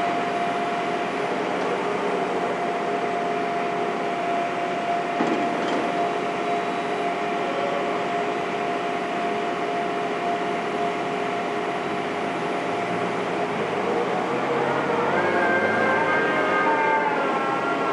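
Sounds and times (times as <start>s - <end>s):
construction machinery engine whine: 0.0s - 17.9s.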